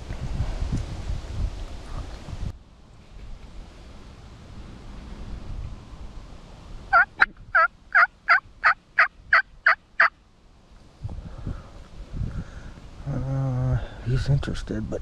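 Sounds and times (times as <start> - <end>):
turkey call yelps: 6.9 - 10.1.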